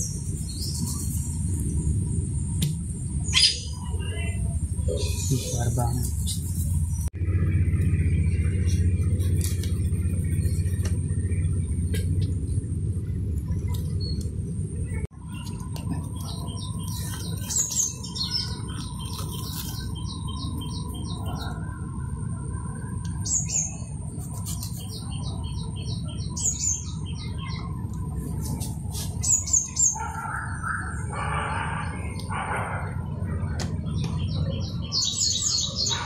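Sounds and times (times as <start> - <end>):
low rumble: 0.0 - 23.2.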